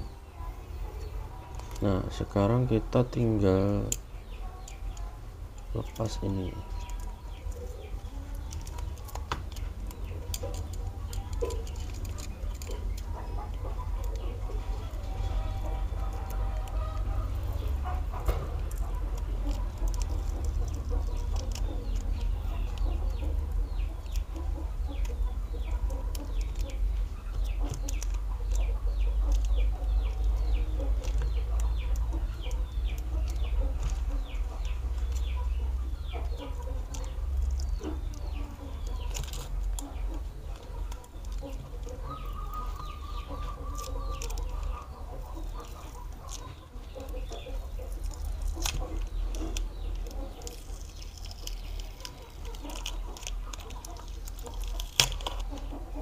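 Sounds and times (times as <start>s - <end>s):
birds chirping: 0.0s - 56.0s
sharp clicks: 16.0s - 55.8s.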